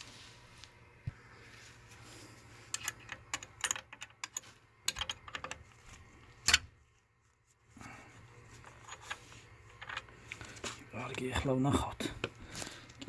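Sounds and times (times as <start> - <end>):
clicks and rattles of fittings: 2.7 - 6.7, 8.6 - 11.2.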